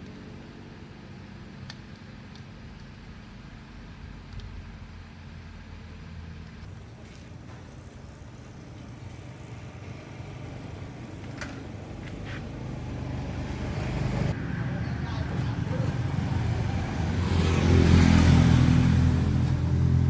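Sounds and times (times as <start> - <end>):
car engine running: 6.7 - 20.0.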